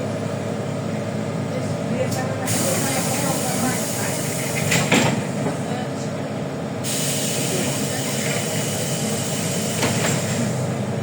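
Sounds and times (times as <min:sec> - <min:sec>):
low engine hum: 0:00.0 - 0:06.9
bus road noise: 0:00.0 - 0:11.0.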